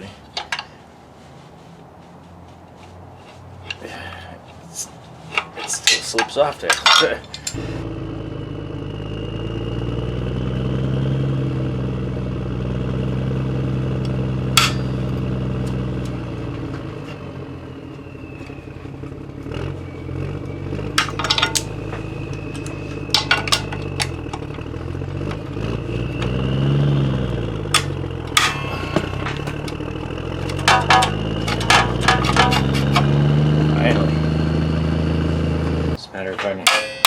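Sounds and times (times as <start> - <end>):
hand tools clanking on metal: 0.0 - 0.8, 3.2 - 7.8, 14.0 - 16.2, 20.9 - 26.4, 27.6 - 34.0, 36.2 - 37.0
motor engine running: 7.4 - 17.1, 18.2 - 36.0.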